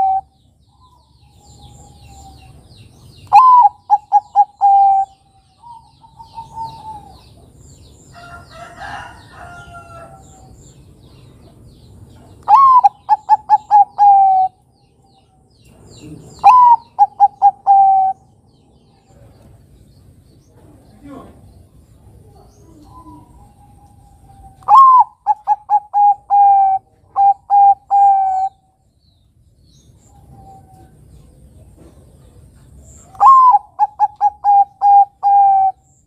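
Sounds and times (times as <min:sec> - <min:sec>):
dove cooing song: 0:00.0 - 0:07.6, 0:12.1 - 0:14.6, 0:15.2 - 0:19.3, 0:22.2 - 0:28.7, 0:30.0 - 0:36.0.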